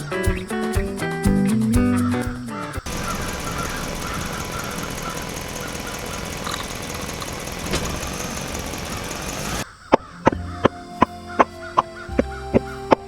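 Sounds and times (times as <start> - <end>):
music: 0.0 - 2.9, 10.2 - 13.0
engine running steadily: 2.8 - 9.6.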